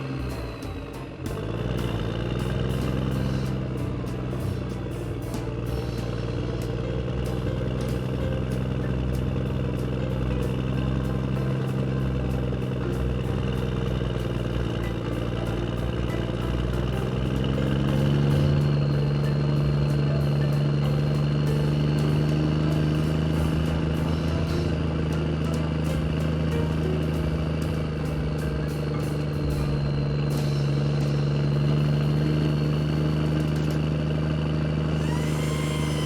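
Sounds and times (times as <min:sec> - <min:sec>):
engine running: 0:00.0 - 0:36.0.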